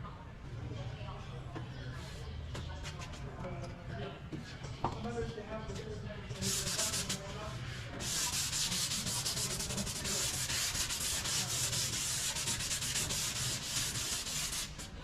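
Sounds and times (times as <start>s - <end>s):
sanding car body filler: 6.4s - 15.0s.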